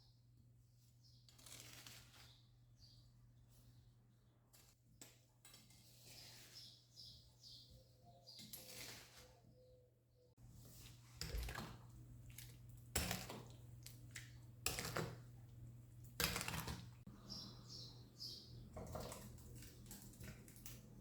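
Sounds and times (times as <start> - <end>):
bird chirping: 6.2 - 8.6, 17.1 - 19.0.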